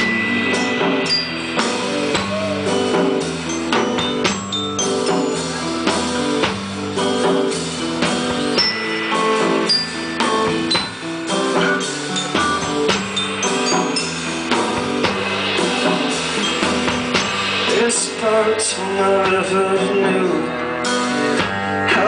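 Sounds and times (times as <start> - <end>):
drum kit beat: 0.0 - 22.0.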